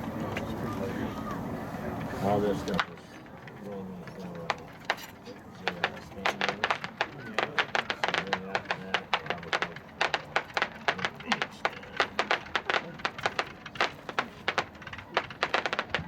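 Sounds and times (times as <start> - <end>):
roman candles firing sharp pops: 4.5 - 16.0.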